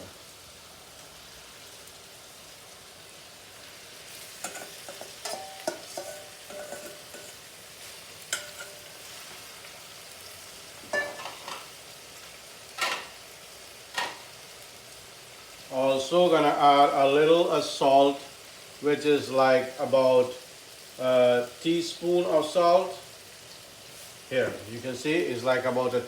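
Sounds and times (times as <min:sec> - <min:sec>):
meat sizzling in hot oil: 0:00.0 - 0:26.0
utensil scraping and clanking pan: 0:04.2 - 0:09.5, 0:10.8 - 0:11.8, 0:12.8 - 0:13.2, 0:13.9 - 0:14.4.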